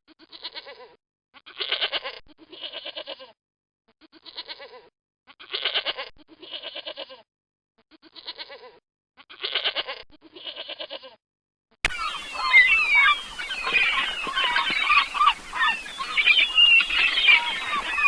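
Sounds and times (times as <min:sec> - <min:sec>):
animal bleating: 0:00.1 - 0:03.4, 0:04.0 - 0:07.3, 0:07.9 - 0:11.2, 0:12.0 - 0:18.0
flock of birds calling: 0:11.9 - 0:18.0.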